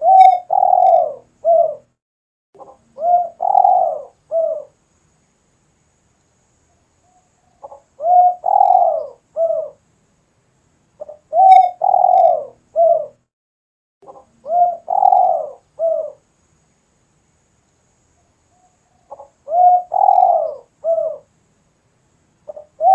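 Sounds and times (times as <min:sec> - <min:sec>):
dove cooing: 0:00.0 - 0:01.9, 0:02.6 - 0:04.8, 0:07.5 - 0:09.8, 0:11.0 - 0:13.2, 0:14.1 - 0:16.2, 0:19.0 - 0:21.3, 0:22.5 - 0:22.9.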